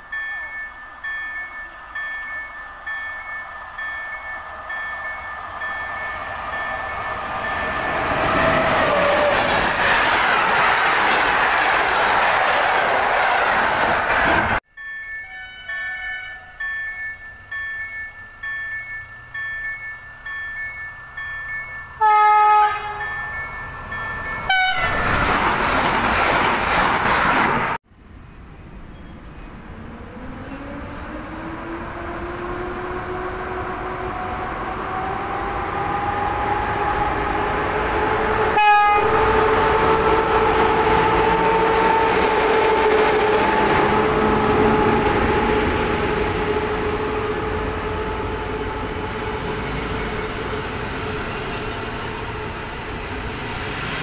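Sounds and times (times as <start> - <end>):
electric locomotive rumble: 0.0 - 54.0
passenger train rushing past: 0.0 - 54.0
train horn blast: 15.3 - 16.6, 22.0 - 23.1, 24.4 - 25.1, 36.5 - 49.4
drawn-out rising tone: 29.4 - 38.6.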